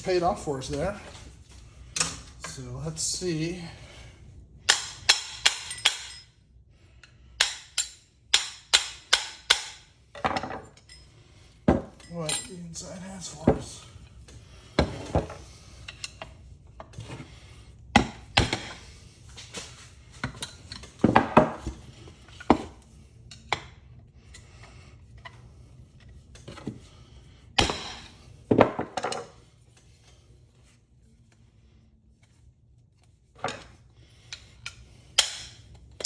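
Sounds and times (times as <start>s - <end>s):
hard parts knocking and clattering: 11.7s - 12.6s, 20.2s - 21.9s, 27.6s - 29.4s.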